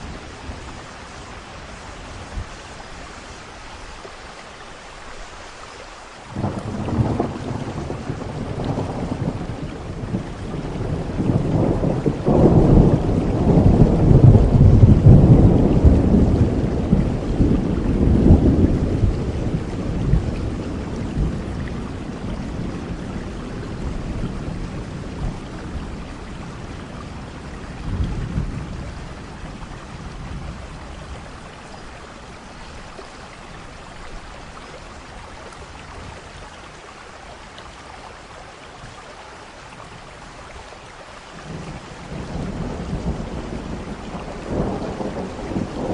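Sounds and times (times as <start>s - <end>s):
steady rain: 0.0s - 45.9s
thunder rumbling: 6.3s - 32.5s, 41.4s - 45.9s.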